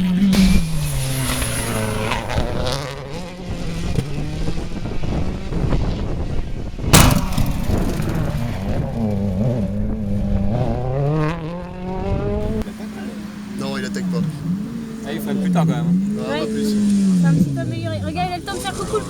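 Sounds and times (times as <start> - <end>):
rally car engine revving: 0.0 - 19.0
sharp bang: 0.3 - 2.8, 6.9 - 9.2.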